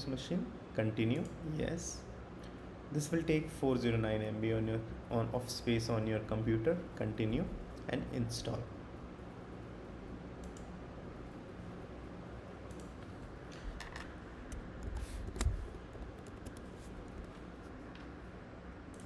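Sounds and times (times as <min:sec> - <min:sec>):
low room hum: 0:00.0 - 0:19.0
faint clicks: 0:10.4 - 0:10.7.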